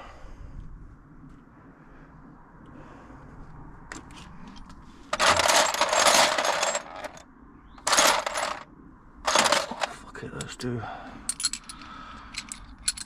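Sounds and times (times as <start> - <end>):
metal hand tools clattering: 5.2 - 7.2, 7.8 - 8.6, 9.3 - 9.9.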